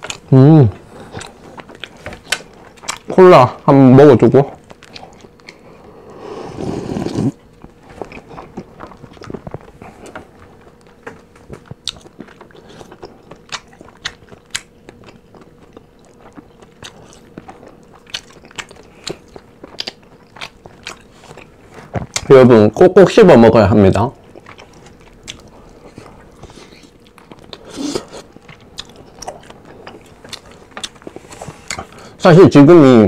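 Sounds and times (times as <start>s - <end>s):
person swallowing a drink: 6.5s - 7.4s.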